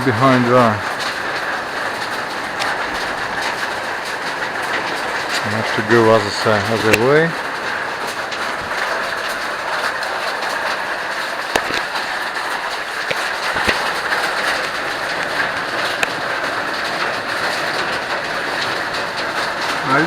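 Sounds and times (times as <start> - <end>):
waterfall rushing: 0.0 - 20.0
sharp clicks: 11.4 - 12.1.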